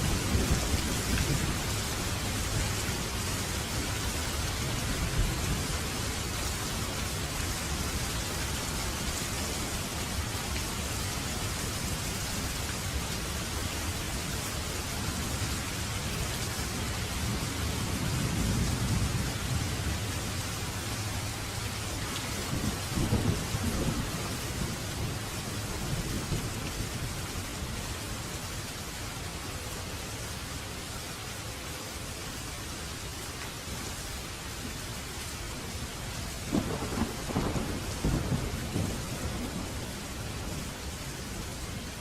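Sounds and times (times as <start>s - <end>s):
steady rain: 0.0s - 42.0s
thunder rumbling: 22.2s - 27.2s, 36.5s - 40.9s.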